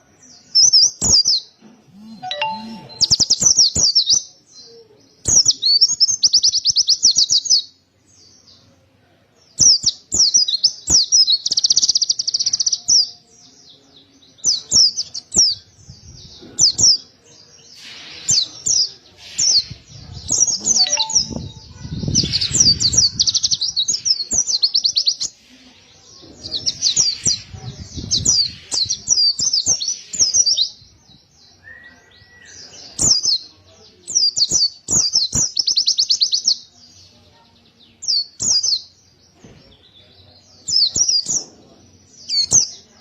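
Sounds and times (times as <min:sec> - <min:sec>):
bird chattering and trilling: 0:17.7 - 0:25.3.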